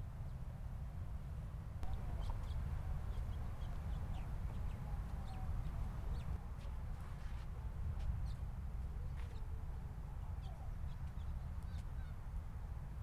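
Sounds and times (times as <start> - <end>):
steady low rumble: 0.8 - 9.8
birds chirping: 1.8 - 6.4.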